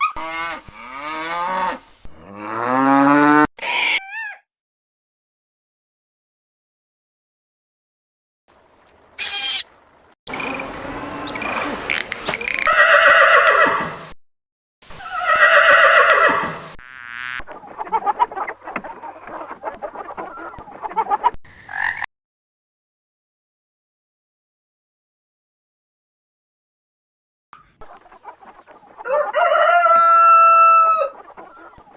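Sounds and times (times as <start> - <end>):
rustling choppy noise: 10.3 - 12.7
animal calls falling in pitch: 10.3 - 12.9.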